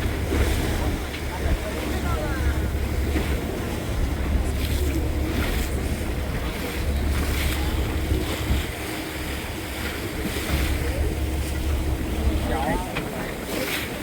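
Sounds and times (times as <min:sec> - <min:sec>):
boat engine humming: 0:00.0 - 0:14.0
waves washing around hull: 0:00.0 - 0:14.0
wind buffeting microphone: 0:00.0 - 0:14.0.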